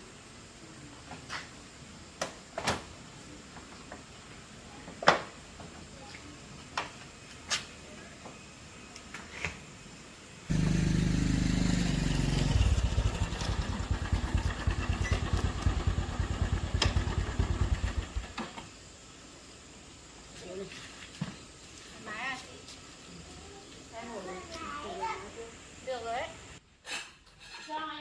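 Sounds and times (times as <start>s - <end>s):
motorcycle engine running: 10.5s - 18.4s.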